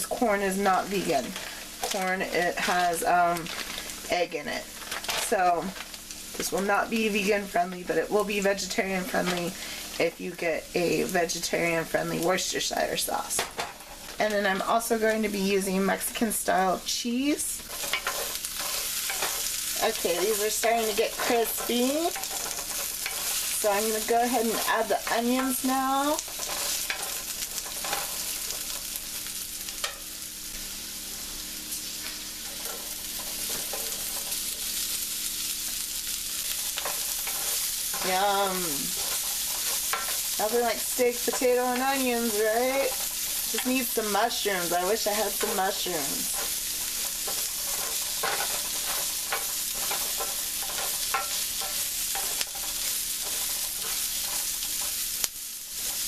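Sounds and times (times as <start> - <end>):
utensil scraping skillet: 0.0 - 10.2, 10.8 - 56.0
potatoes and onions sizzling: 0.0 - 56.0
utensil stirring clicks and scrapes: 17.6 - 23.8, 24.4 - 28.8, 36.6 - 40.4, 45.4 - 56.0.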